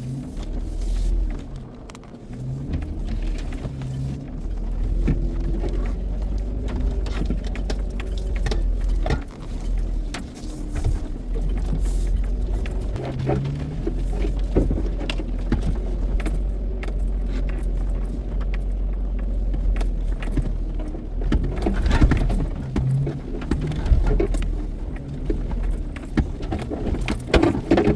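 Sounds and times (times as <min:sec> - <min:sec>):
truck engine running: 0:00.0 - 0:27.9
clunks and knocks: 0:01.2 - 0:27.9.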